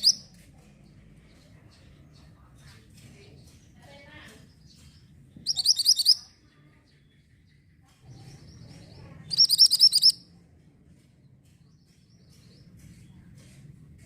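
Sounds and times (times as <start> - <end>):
soft bird chirps: 0.0 - 10.4.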